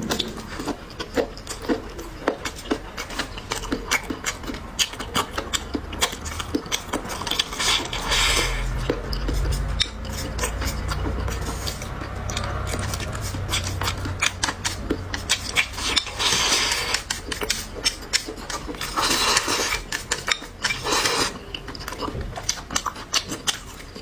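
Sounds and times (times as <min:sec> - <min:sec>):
low hum: 0:00.0 - 0:17.8
noisy bursts: 0:00.0 - 0:20.1
chewing and mouth clicks: 0:00.0 - 0:24.0.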